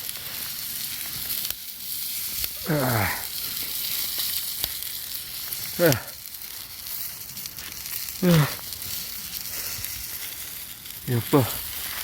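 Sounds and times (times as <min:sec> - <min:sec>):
campfire sizzling and crackling: 0:00.0 - 0:12.0
person making short vocal sound: 0:08.2 - 0:08.6.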